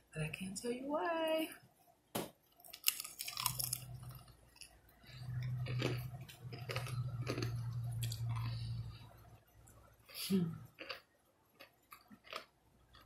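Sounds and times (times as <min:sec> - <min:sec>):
low steady hum: 0:00.0 - 0:13.0
crunching fried chicken: 0:02.6 - 0:09.0, 0:10.6 - 0:11.0, 0:11.6 - 0:13.0.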